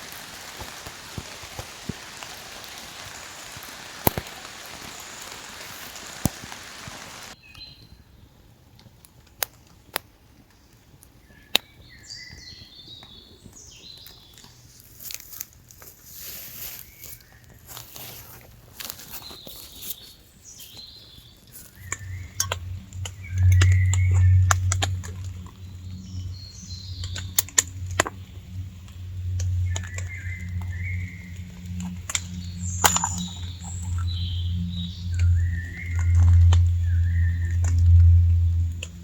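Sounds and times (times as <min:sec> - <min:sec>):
birds chirping: 0:00.0 - 0:08.1, 0:19.0 - 0:39.0
low steady hum: 0:21.6 - 0:39.0.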